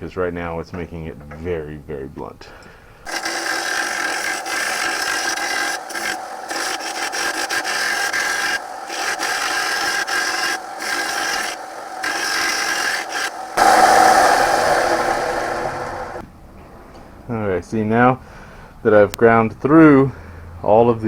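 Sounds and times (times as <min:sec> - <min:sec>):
belt sander grinding metal: 0:03.1 - 0:16.2.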